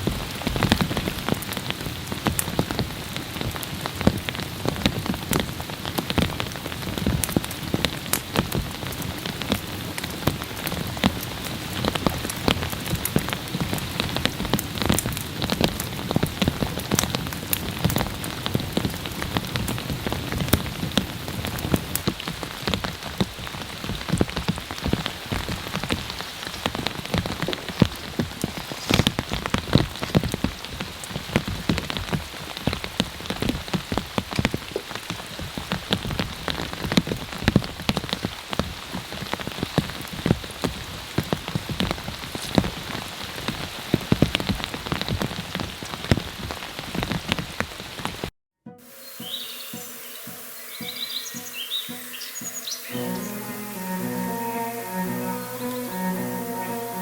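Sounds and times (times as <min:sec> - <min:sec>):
heavy rain on a tarp: 0:00.0 - 0:48.3.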